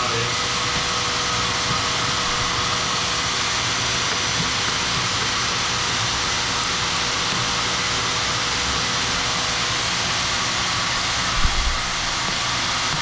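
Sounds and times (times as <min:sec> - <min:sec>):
machine motor running: 0:00.0 - 0:13.0.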